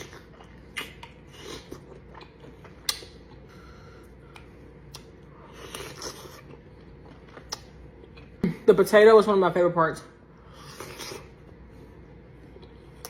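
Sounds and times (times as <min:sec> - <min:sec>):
slurping and chewing: 0:00.0 - 0:03.5, 0:04.3 - 0:08.3, 0:10.5 - 0:11.4.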